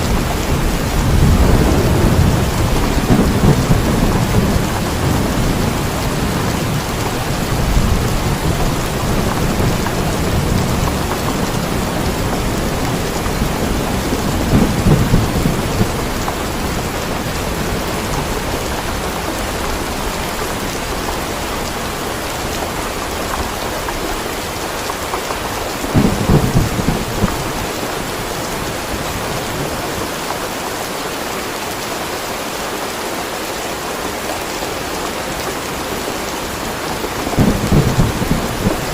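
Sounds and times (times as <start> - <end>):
rolling thunder: 0.0 - 20.7, 25.8 - 29.9, 37.1 - 38.9
steady rain: 0.0 - 38.9.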